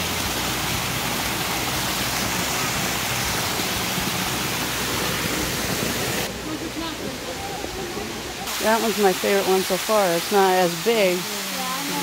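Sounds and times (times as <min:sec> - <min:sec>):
creek running over stones: 0:00.0 - 0:12.0
waterfall rushing over rocks: 0:00.0 - 0:12.0.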